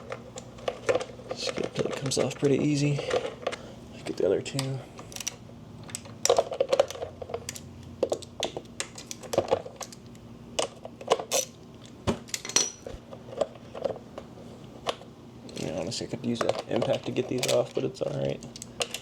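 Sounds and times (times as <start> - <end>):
tools and bolts clinking on metal: 12.3 - 12.9.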